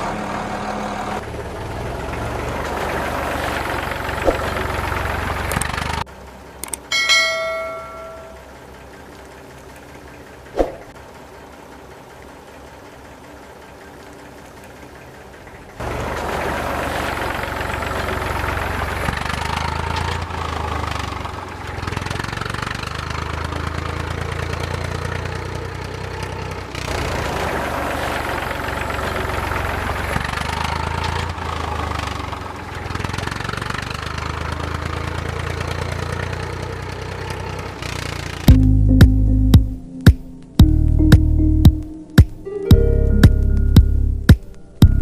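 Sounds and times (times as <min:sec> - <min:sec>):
tractor engine running: 0:00.0 - 0:45.0.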